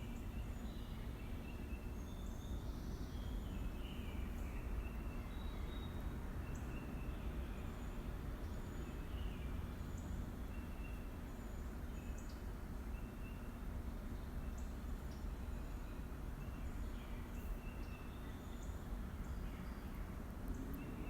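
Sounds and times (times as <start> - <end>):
birds chirping: 14.5 - 21.0.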